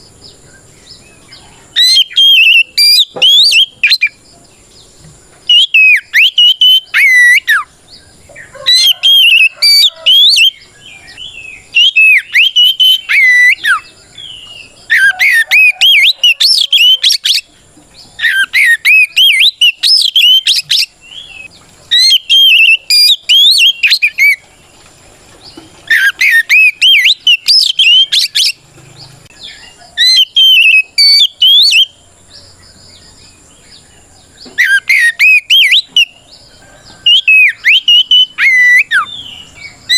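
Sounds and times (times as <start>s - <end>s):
bird singing whistled phrases: 1.8s - 4.2s, 5.5s - 7.7s, 8.5s - 17.5s, 18.2s - 24.4s, 25.9s - 28.6s, 29.4s - 32.0s, 34.5s - 36.2s, 37.0s - 39.9s.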